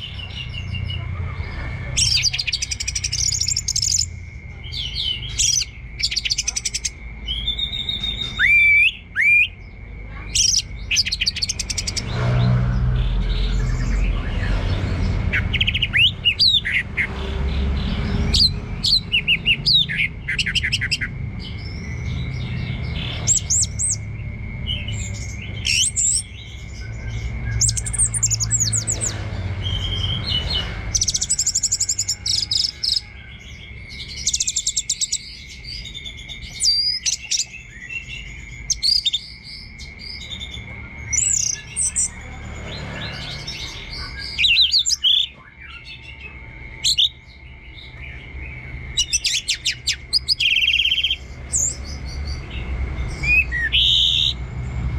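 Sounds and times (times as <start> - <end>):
thrush singing: 0.0 - 54.9
low rumble: 10.7 - 32.2.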